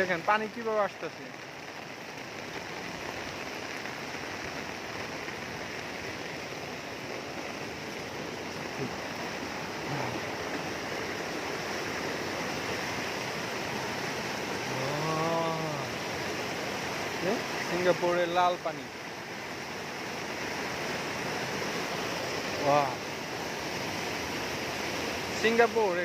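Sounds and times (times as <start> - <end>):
heavy rain rushing: 0.0 - 26.0
person humming: 9.8 - 10.3, 14.7 - 15.9.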